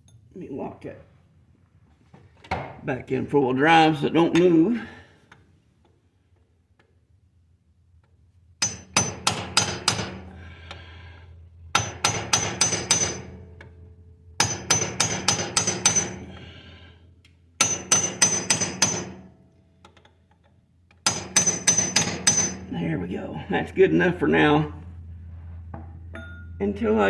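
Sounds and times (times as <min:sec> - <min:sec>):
hammer striking metal pin: 0:08.6 - 0:10.4, 0:11.7 - 0:13.8, 0:14.4 - 0:16.4, 0:17.6 - 0:20.1, 0:20.9 - 0:22.7.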